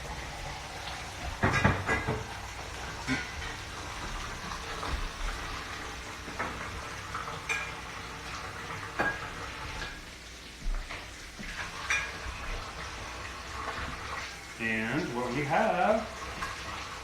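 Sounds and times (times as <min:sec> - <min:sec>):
hot oil sizzling in a frying pan: 0:00.0 - 0:17.0
utensils clinking on cookware: 0:01.3 - 0:03.7, 0:06.3 - 0:07.9, 0:08.9 - 0:10.0, 0:10.9 - 0:12.6.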